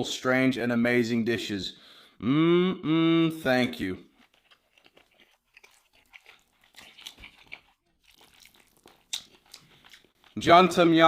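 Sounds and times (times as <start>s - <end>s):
person chewing food: 4.0s - 10.4s
wet mouth clicks and smacks: 4.4s - 10.3s.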